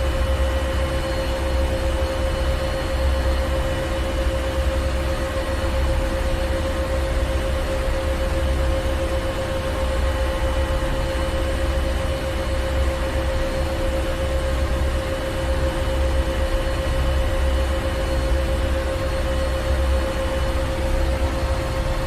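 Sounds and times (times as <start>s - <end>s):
constant machinery hum: 0.0s - 22.0s
deep machinery rumble: 19.3s - 22.0s.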